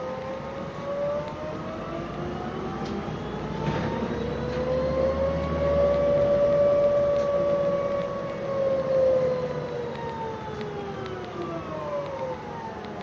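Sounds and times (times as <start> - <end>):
electric bus drive whining: 0.0 - 13.0.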